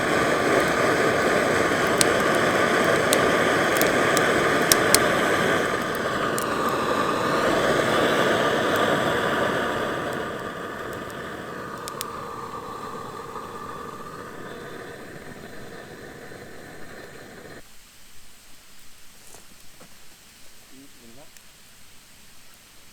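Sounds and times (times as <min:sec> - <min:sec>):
gas torch hissing: 0:00.0 - 0:17.6
sharp crackles: 0:00.0 - 0:17.6.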